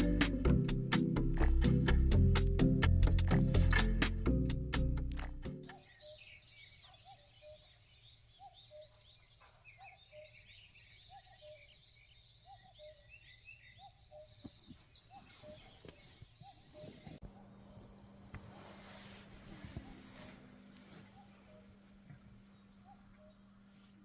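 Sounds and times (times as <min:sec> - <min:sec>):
small birds chirping: 0:05.6 - 0:18.2, 0:19.0 - 0:24.0.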